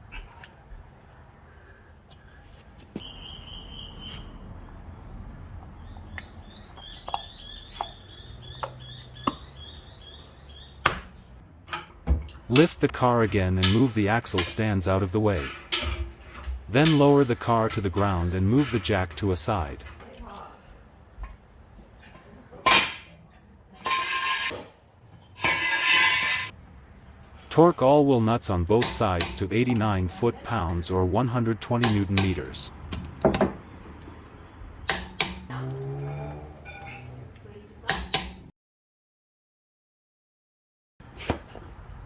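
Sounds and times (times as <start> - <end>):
small bird chirping: 3.0 - 5.2, 5.8 - 10.9
metallic rattling: 25.4 - 26.5.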